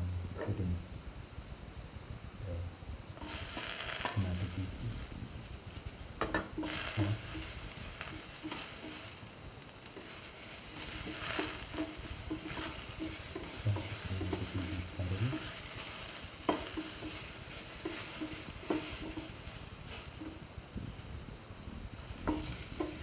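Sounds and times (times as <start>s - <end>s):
low hum: 0.0s - 23.0s
vegetables frying in oil: 3.2s - 23.0s
spatula knocking against pan: 15.3s - 19.4s.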